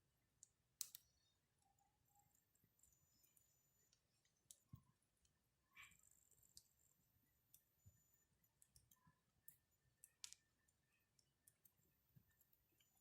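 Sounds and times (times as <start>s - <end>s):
burning wood snapping and popping: 0.8s - 1.0s, 10.0s - 10.5s
campfire crackling: 0.8s - 1.0s.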